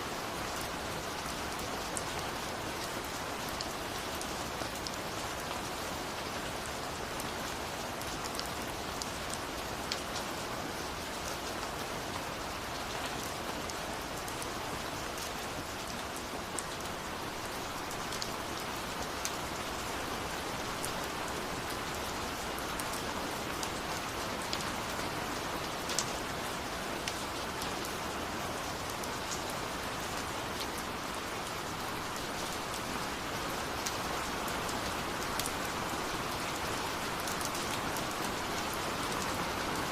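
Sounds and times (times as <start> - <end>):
rain falling hiss: 0.0 - 39.9.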